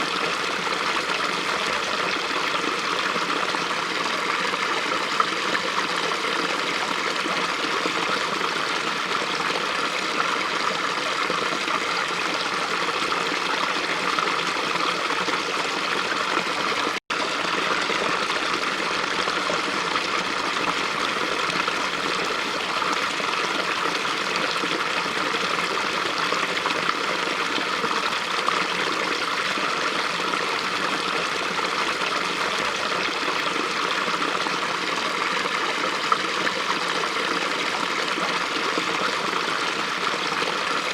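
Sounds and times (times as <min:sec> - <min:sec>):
stream babbling over rocks: 0:00.0 - 0:40.9.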